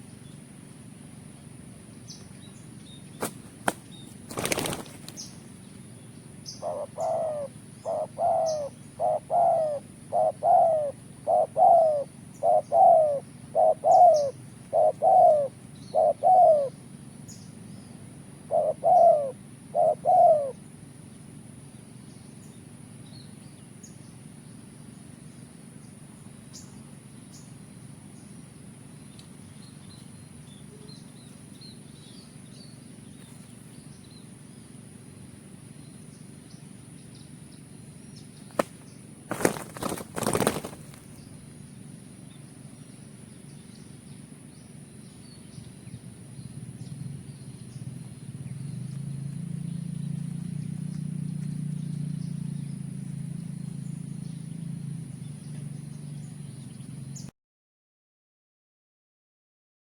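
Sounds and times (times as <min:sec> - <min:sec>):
small birds chirping: 0:00.0 - 0:57.3
wing flapping: 0:03.1 - 0:05.5, 0:38.5 - 0:41.5
dove cooing: 0:06.5 - 0:16.8, 0:18.4 - 0:20.6.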